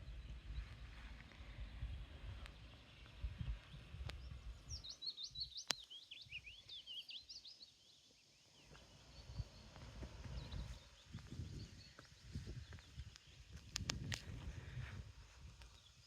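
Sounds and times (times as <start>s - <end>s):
low rumbling noise: 0.0s - 4.8s, 8.6s - 15.6s
songbird twittering: 2.5s - 13.9s.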